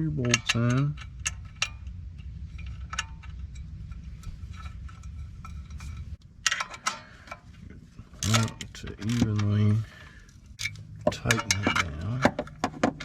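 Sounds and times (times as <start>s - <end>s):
low steady hum: 0.0s - 13.0s
metal clinks: 0.2s - 9.1s
small metallic clicks: 0.2s - 13.0s.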